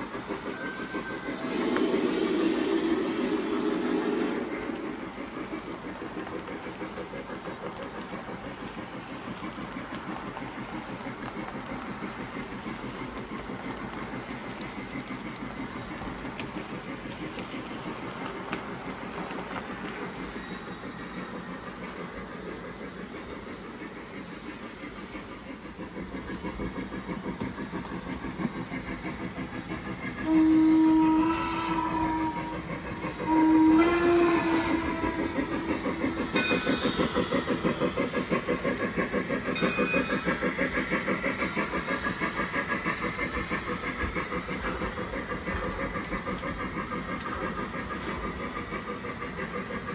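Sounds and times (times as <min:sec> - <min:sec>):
locomotive sound system: 0:00.0 - 0:07.8, 0:25.8 - 0:49.7
model train wheels clattering: 0:00.0 - 0:49.9
locomotive whistle blasts: 0:00.2 - 0:04.4, 0:30.1 - 0:37.6.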